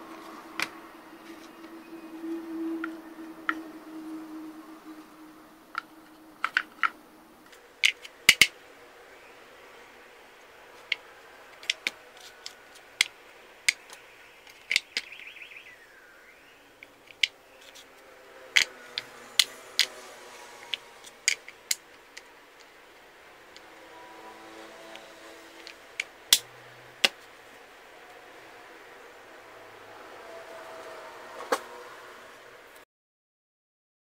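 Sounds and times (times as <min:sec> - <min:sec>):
wooden puzzle pieces clicking: 0:05.7 - 0:08.5, 0:10.8 - 0:15.2, 0:16.8 - 0:17.9, 0:20.6 - 0:22.8.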